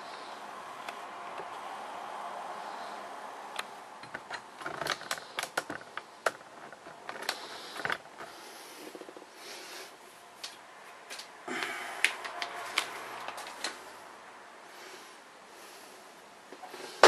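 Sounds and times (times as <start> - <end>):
hard plastic clicking: 3.6 - 8.3.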